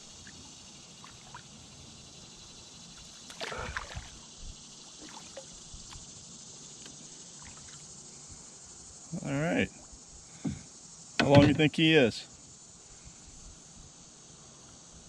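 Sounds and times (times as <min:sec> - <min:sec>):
water lapping around a canoe: 0:00.0 - 0:01.6, 0:03.0 - 0:06.1, 0:07.4 - 0:07.9
insects chorus: 0:00.0 - 0:15.0
knocks against canoe hull: 0:10.4 - 0:11.7.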